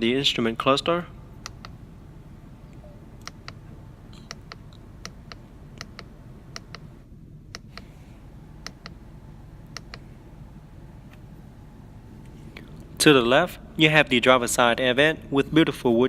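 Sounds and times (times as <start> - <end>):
low steady hum: 0.0 - 16.0
car indicator ticking: 1.4 - 1.8, 3.2 - 3.6, 4.2 - 6.9, 8.6 - 9.0, 9.6 - 10.1.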